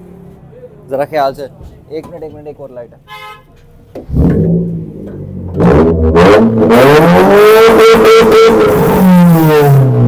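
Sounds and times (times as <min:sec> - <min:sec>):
car engine revving: 0:03.9 - 0:10.0.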